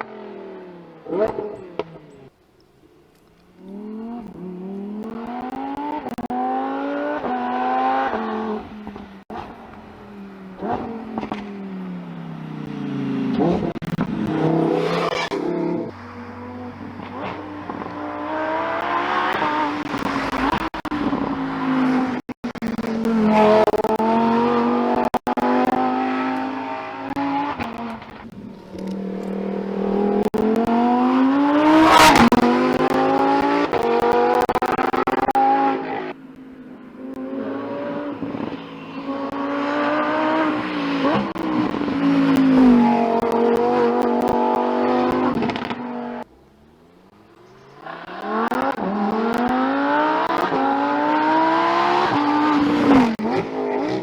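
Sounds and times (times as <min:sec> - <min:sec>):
sports car engine accelerating: 0:03.5 - 0:54.0
exhaust crack: 0:07.2 - 0:36.5, 0:40.4 - 0:50.8.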